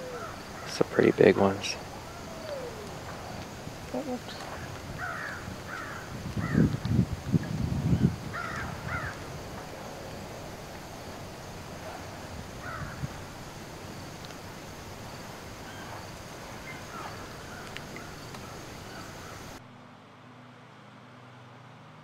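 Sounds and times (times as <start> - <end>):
short bird calls: 0.0 - 6.7
steady outdoor hiss: 0.0 - 22.0.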